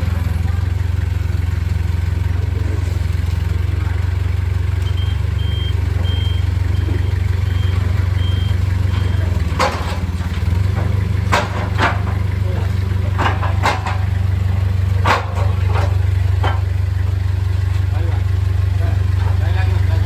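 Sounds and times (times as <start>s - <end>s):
engine idling: 0.0s - 20.0s
short high-pitched beeps: 4.8s - 6.9s.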